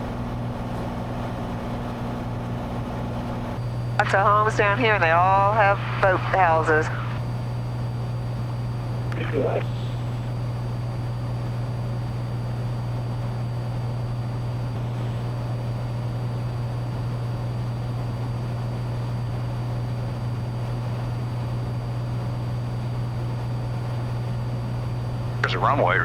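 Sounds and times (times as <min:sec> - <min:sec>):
airplane engine and propeller drone: 0:00.0 - 0:26.0.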